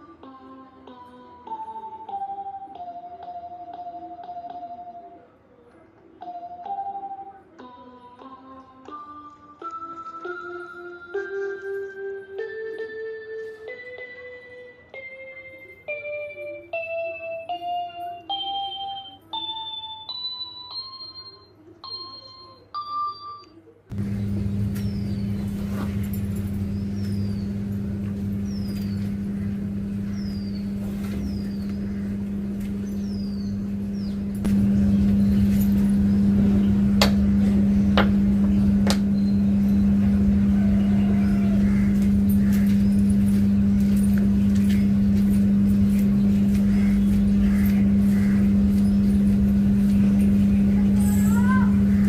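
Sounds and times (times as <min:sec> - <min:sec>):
vehicle motor humming: 0:23.9 - 0:52.0.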